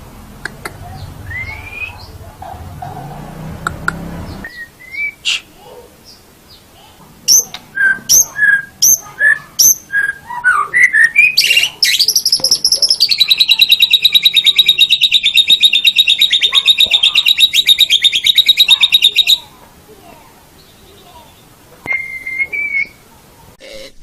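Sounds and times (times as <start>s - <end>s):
bird singing whistled notes and trills: 0.9s - 2.1s, 4.3s - 5.4s, 7.3s - 19.5s, 20.6s - 23.0s.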